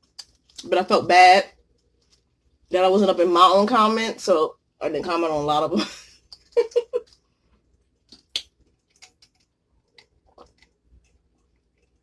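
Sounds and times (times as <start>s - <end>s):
chewing mouth clicks and smacks: 0.0s - 0.7s, 6.2s - 7.2s, 8.1s - 12.0s.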